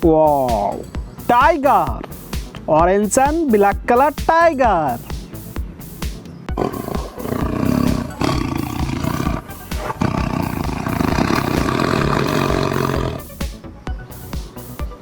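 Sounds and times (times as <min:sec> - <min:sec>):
background music with steady beat: 0:00.0 - 0:15.0
tiger roaring: 0:06.6 - 0:13.3.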